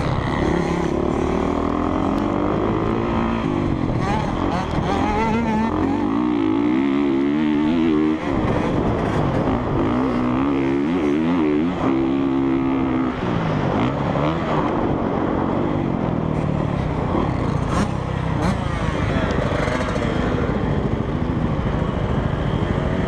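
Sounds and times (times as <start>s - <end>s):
dirt bike engine revving: 0.0s - 14.9s, 17.1s - 20.5s.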